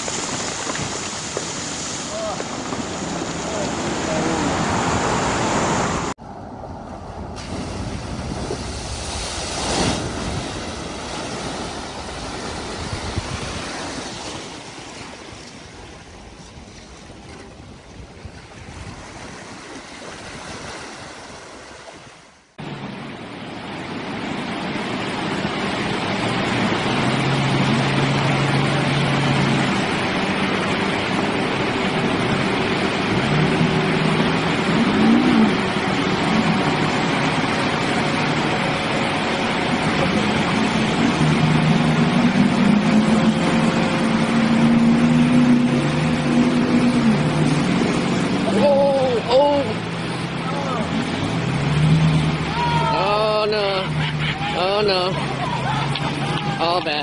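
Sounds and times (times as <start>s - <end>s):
surf: 0.0s - 6.2s, 7.2s - 57.0s
water rushing and splashing: 0.0s - 57.0s.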